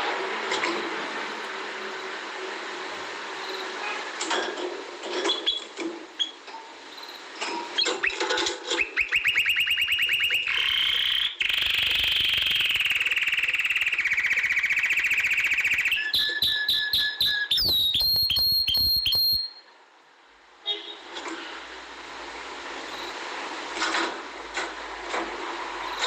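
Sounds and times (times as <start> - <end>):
canary singing trills: 8.8 - 19.7.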